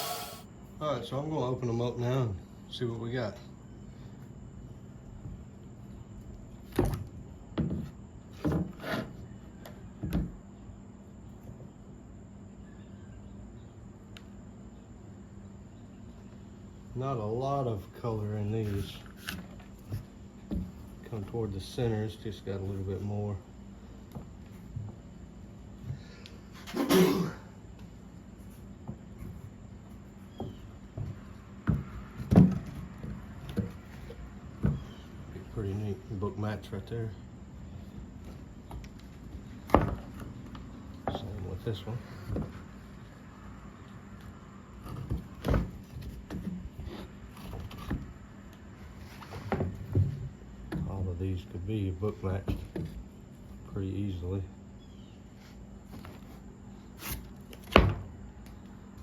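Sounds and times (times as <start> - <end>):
wooden knocks and clunks: 6.7 - 10.4, 19.4 - 20.9, 30.3 - 35.0, 37.9 - 41.5, 42.1 - 42.7, 44.8 - 48.1, 49.3 - 51.1, 52.4 - 53.1.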